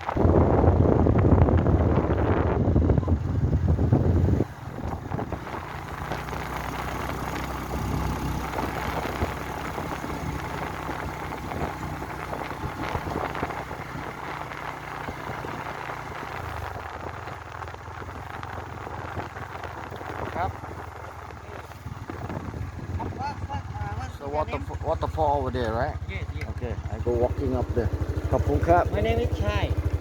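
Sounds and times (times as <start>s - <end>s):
wind rush on microphone: 0.0s - 30.0s
motorbike engine idling: 17.0s - 30.0s.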